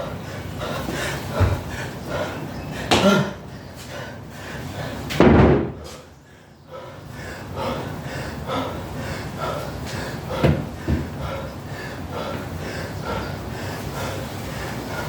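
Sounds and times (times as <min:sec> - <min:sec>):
person panting hard: 0:00.0 - 0:05.2, 0:05.8 - 0:15.0
dumbbells thudding: 0:05.2 - 0:05.9, 0:10.4 - 0:11.2.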